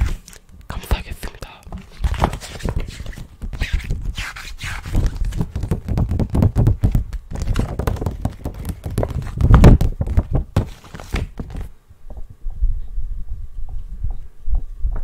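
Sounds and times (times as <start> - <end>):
rapid clicking and tapping: 5.0 - 10.7.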